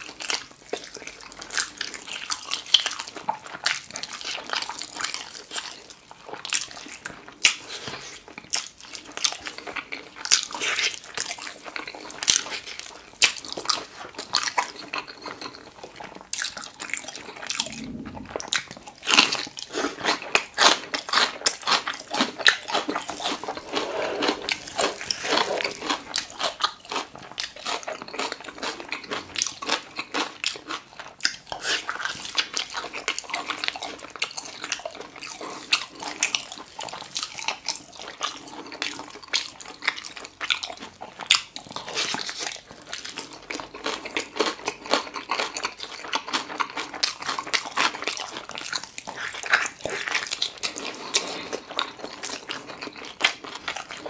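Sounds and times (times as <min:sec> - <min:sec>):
person chewing food: 0:00.0 - 0:54.0.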